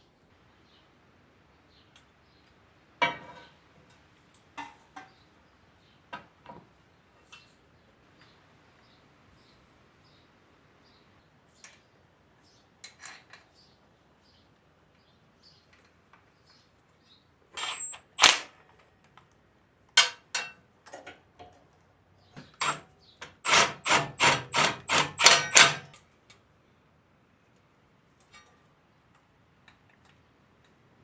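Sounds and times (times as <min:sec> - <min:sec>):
metallic clicks and knocks of tools: 0:20.0 - 0:21.6, 0:22.6 - 0:26.4.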